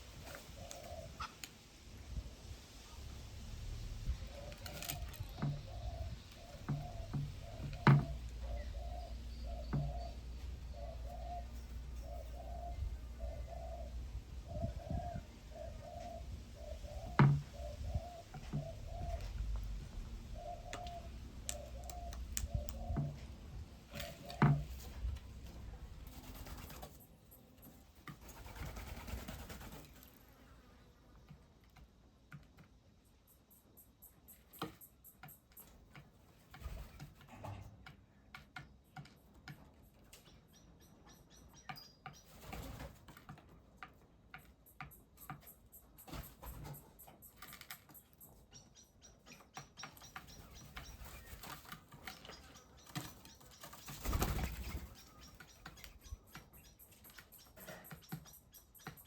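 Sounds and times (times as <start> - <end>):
dove cooing: 0.2 - 1.4, 3.1 - 26.7
wings flapping: 4.1 - 8.3, 23.9 - 27.0, 28.1 - 30.2, 50.3 - 56.0.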